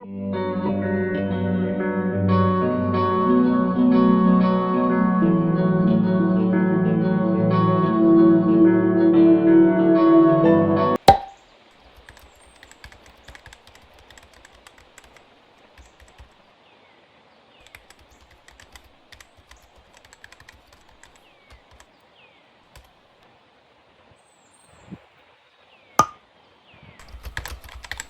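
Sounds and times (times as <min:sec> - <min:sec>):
typing on a keyboard: 0:11.8 - 0:16.4, 0:17.6 - 0:21.9, 0:22.7 - 0:22.9, 0:27.0 - 0:28.0.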